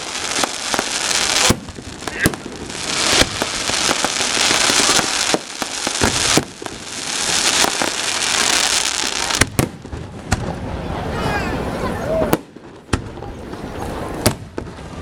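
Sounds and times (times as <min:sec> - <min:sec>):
firework shells bursting: 0:00.0 - 0:10.5
fireworks crackling: 0:00.0 - 0:15.0.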